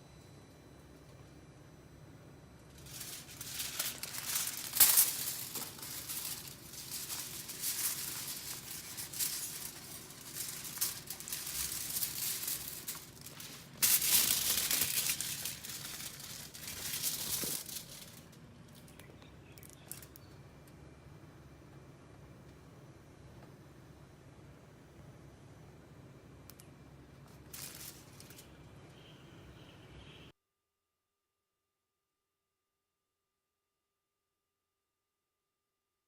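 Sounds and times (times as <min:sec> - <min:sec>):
foil crinkling: 0:02.7 - 0:19.0, 0:27.2 - 0:28.6.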